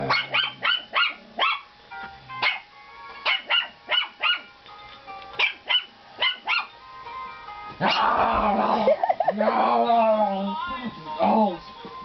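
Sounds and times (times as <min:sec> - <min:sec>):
puppies yapping: 0:00.0 - 0:01.7, 0:02.4 - 0:04.5, 0:05.3 - 0:06.8.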